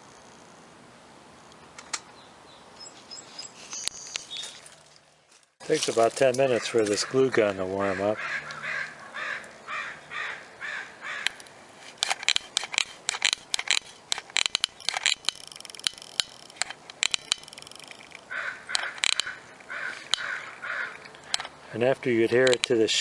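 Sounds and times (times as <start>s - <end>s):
sharp bird clicks: 2.8s - 4.6s, 11.1s - 11.5s, 12.2s - 21.5s
bird cawing: 6.5s - 11.4s, 17.4s - 21.7s
high buzzing bird call: 7.8s - 11.4s, 14.8s - 21.3s.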